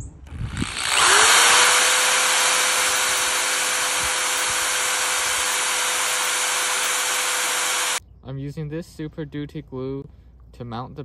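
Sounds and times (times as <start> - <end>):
electric drill motor whine: 0.2 - 8.0.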